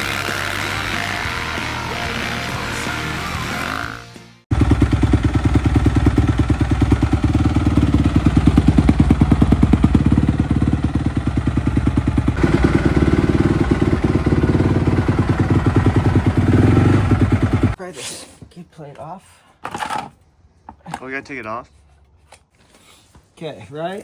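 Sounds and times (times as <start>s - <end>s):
dirt bike engine running: 4.5s - 17.8s.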